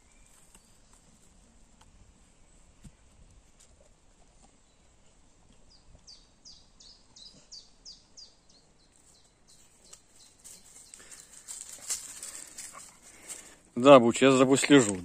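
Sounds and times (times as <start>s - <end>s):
songbird singing: 0.0s - 15.0s
rustling in dry leaf litter: 9.0s - 13.6s.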